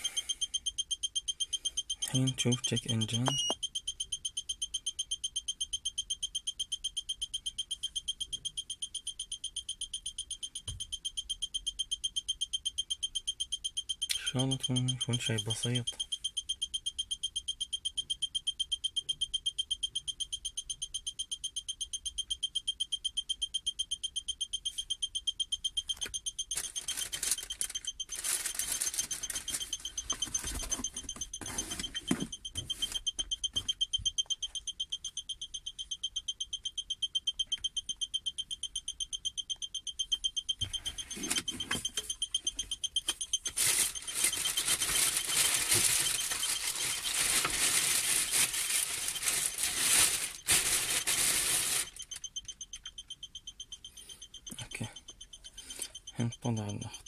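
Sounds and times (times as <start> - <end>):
rapid high-pitched warning beeps: 0.0 - 57.0
handling and rustling noise: 26.5 - 33.8, 43.4 - 52.0.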